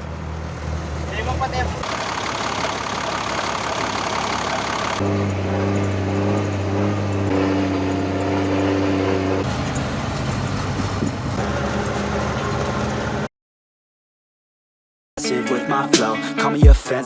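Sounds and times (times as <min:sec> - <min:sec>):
truck engine idling: 0:00.0 - 0:13.3.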